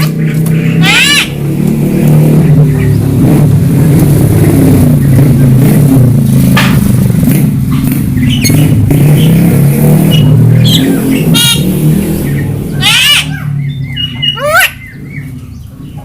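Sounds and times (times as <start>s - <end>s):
engine running: 0.0s - 16.0s
bird chirps: 8.1s - 9.4s, 10.0s - 16.0s.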